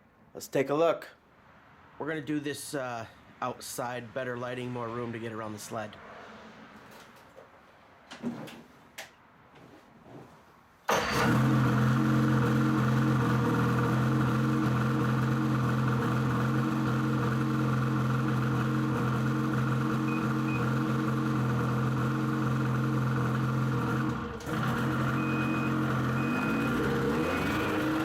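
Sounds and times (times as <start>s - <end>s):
snowmobile engine idling: 11.2s - 28.0s.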